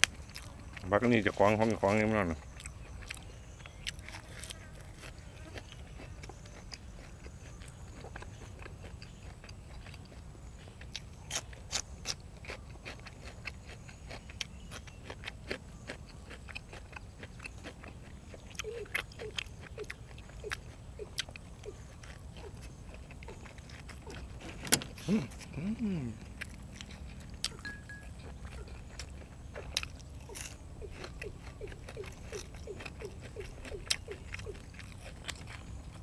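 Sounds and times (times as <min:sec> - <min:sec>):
person chewing crunchy food: 0:00.0 - 0:36.0
low steady hum: 0:15.6 - 0:36.0
mouth clicks: 0:17.4 - 0:35.8.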